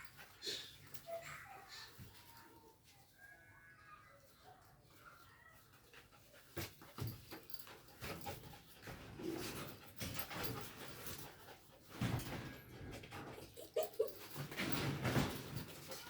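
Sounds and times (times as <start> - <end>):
dog panting hard: 6.0 - 14.9
dog whining: 13.4 - 14.4.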